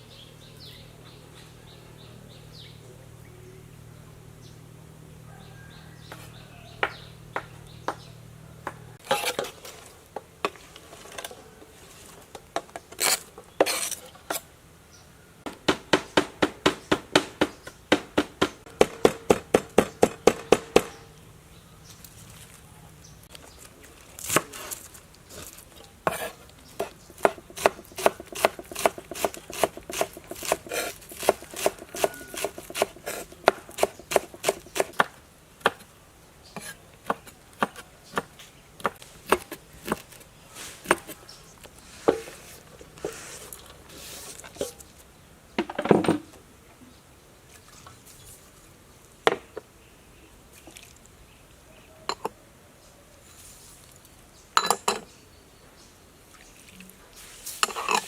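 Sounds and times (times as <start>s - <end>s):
knife chopping on cutting board: 26.1s - 35.8s.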